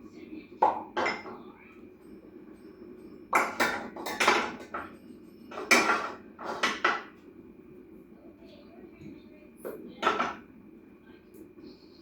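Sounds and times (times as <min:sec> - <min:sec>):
dishes and utensils clattering: 0:00.6 - 0:01.5, 0:03.3 - 0:07.2, 0:09.7 - 0:10.4.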